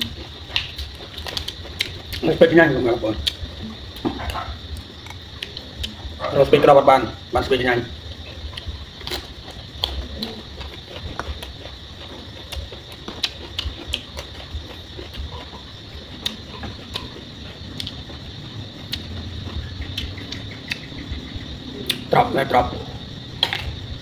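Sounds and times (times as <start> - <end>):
person chewing: 0.0 - 2.4, 3.1 - 6.2, 8.0 - 20.9.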